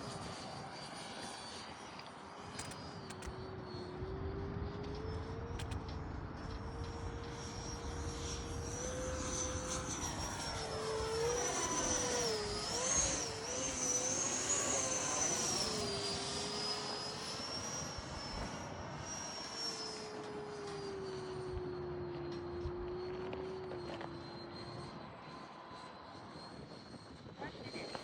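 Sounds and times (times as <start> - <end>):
electric ducted fans whining: 0.0 - 28.0.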